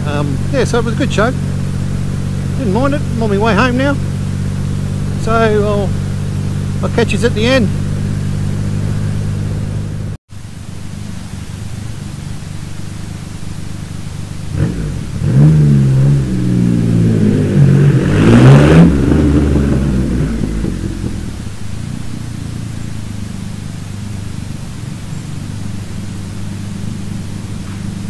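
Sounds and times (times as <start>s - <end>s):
motorcycle engine revving: 0.0s - 28.0s
wind noise: 11.0s - 28.0s.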